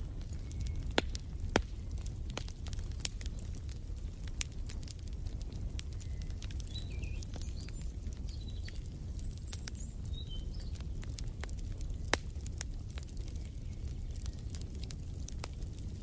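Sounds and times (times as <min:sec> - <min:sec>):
wood fire crackling and popping: 0:00.0 - 0:16.0
bird chirps: 0:06.0 - 0:08.8.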